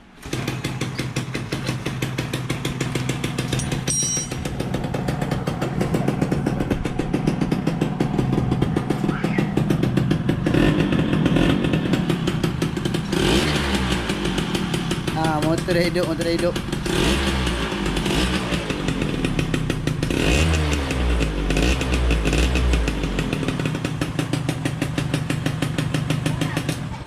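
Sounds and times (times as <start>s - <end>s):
motorcycle engine putter: 0.2s - 7.4s.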